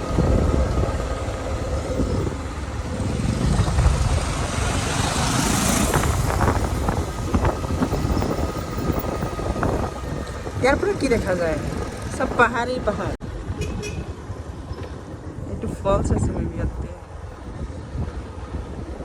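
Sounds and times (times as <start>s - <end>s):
motorcycle engine rumble: 0.0s - 19.0s.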